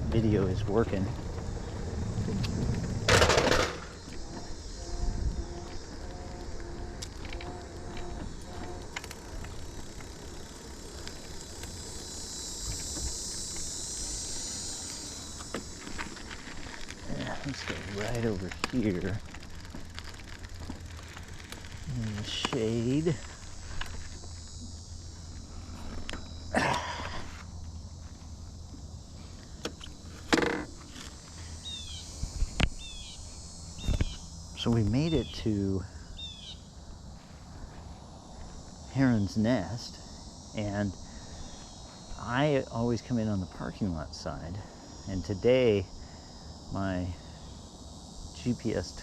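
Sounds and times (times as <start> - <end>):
steady low rumble: 0.0 - 7.1
wind rumbling on microphone: 0.0 - 24.8, 32.0 - 35.3
steady high hiss: 0.0 - 49.0.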